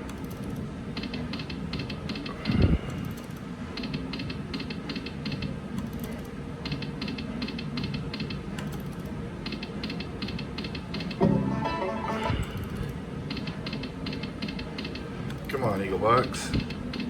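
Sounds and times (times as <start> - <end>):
low casino hum: 0.0 - 17.0
loud slot game sound: 11.2 - 12.9.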